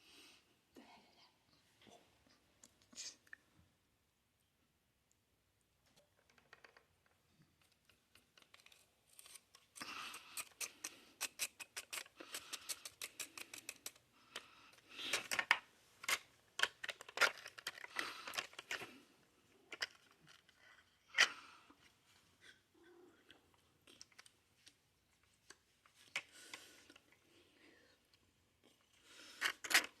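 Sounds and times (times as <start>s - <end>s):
cookie packaging crackling: 7.6s - 19.0s.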